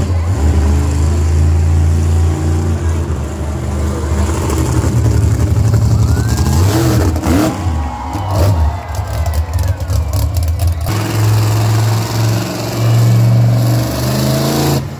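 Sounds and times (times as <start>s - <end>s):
vehicle engine running: 1.1s - 14.9s.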